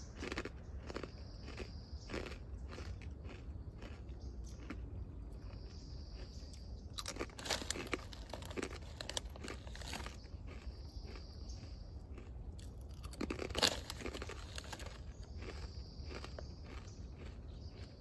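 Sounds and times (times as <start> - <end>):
crinkling crunching handling noise: 6.9 - 11.2, 12.1 - 17.8.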